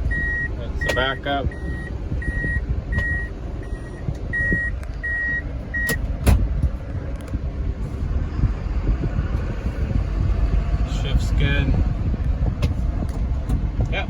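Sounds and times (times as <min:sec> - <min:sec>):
truck reversing beeper: 0:00.0 - 0:06.0
diesel engine idling: 0:00.0 - 0:14.0
sharp clunk: 0:05.9 - 0:06.5.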